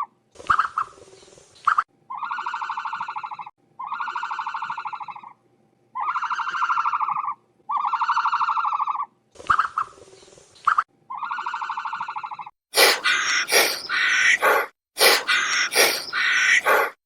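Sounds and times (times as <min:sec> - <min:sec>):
animal buzzy pulsing call: 0:12.8 - 0:17.0.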